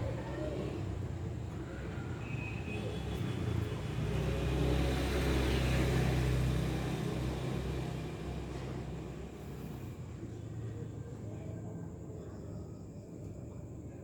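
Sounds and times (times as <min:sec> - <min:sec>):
vehicle engine hum passing: 0:00.0 - 0:10.4
road noise: 0:00.0 - 0:10.8.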